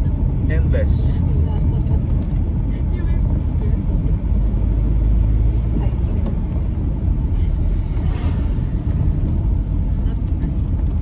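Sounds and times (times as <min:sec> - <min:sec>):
motorcycle engine and road rumble: 0:00.0 - 0:11.0.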